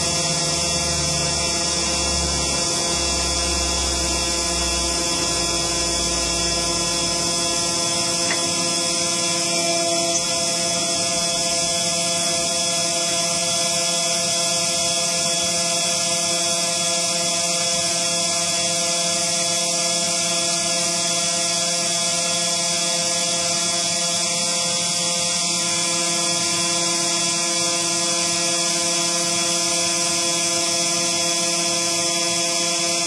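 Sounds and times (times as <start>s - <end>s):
engraving machine motors whining: 0.0s - 21.6s.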